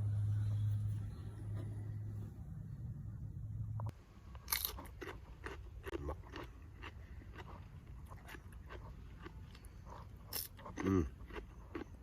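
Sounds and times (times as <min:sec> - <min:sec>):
steady low hum: 0:00.0 - 0:12.0
chewing crisp food: 0:04.3 - 0:12.0.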